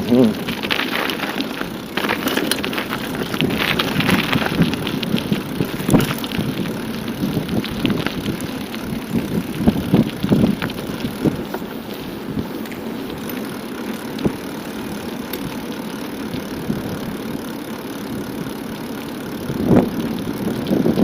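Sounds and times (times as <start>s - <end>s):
bicycle tyre and road noise: 0.0s - 21.0s
bike clicks and rattles: 0.0s - 21.0s
wind on microphone: 3.0s - 11.6s.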